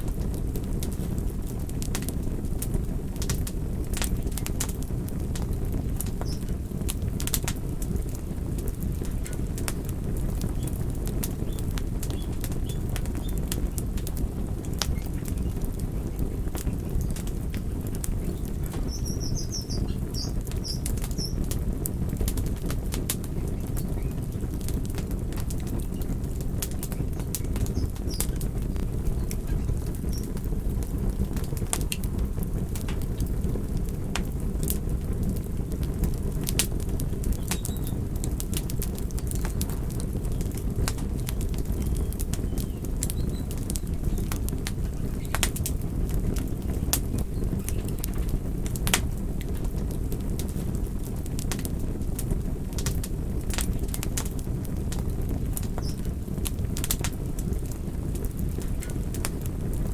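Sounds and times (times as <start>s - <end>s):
campfire crackling: 0.0s - 59.9s
low rumble of flames: 0.0s - 59.9s
bird chirping: 18.2s - 21.4s, 27.4s - 28.4s.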